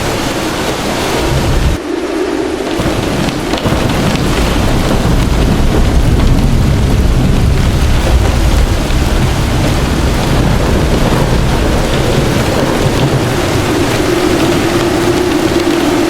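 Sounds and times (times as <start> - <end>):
heavy rain pouring: 0.0 - 16.0
deep rumble: 0.8 - 16.0.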